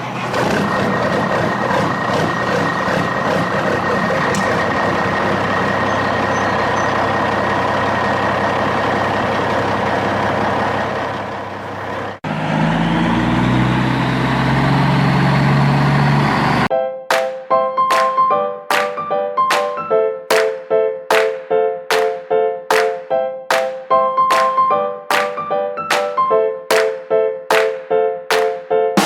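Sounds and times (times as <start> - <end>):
vehicle running noise: 0.0 - 16.7
running sound with pitched tones: 0.4 - 10.8.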